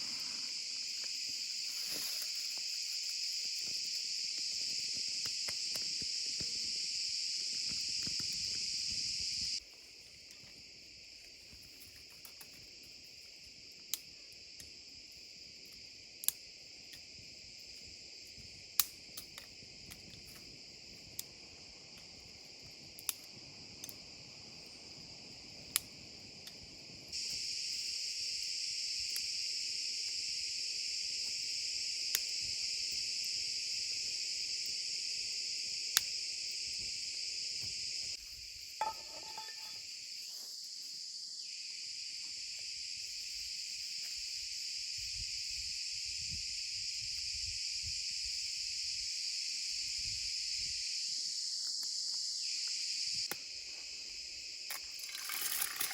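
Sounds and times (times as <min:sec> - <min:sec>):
rustle: 0:00.0 - 0:14.0, 0:31.2 - 0:50.6
crickets chirring: 0:00.0 - 0:55.9.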